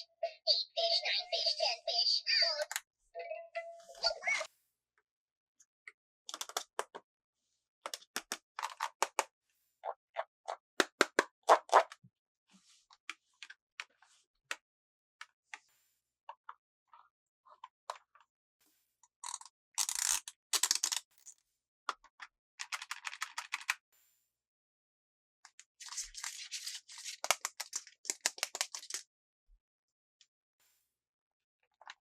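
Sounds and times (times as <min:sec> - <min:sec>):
small clicks and taps: 0:07.8 - 0:09.3.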